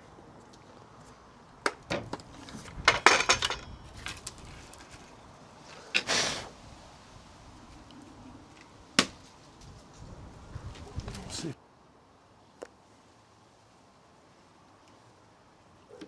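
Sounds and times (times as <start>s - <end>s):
branches and tools clattering: 1.8s - 6.1s.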